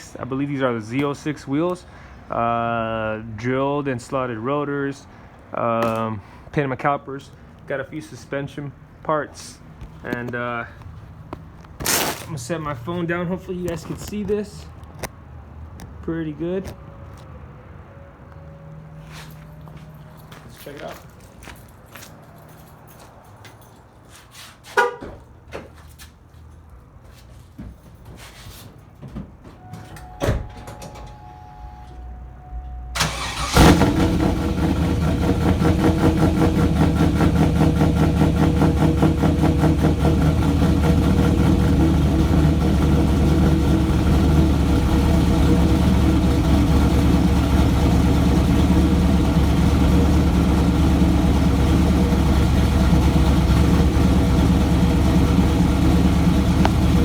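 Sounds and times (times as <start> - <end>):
brief electronic tone: 29.6 - 33.0
car engine starting: 32.6 - 57.0
car engine idling: 32.7 - 57.0.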